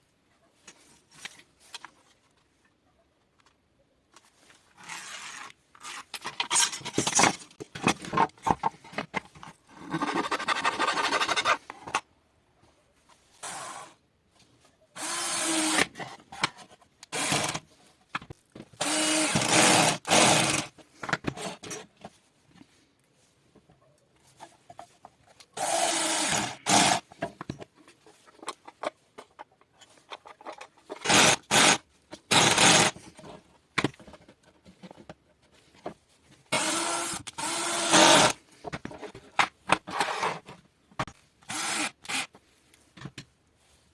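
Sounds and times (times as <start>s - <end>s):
power tool on workpiece: 15.0s - 15.9s, 17.1s - 17.6s, 18.8s - 20.7s, 25.6s - 27.0s, 31.0s - 33.0s, 36.6s - 38.4s, 41.5s - 42.3s.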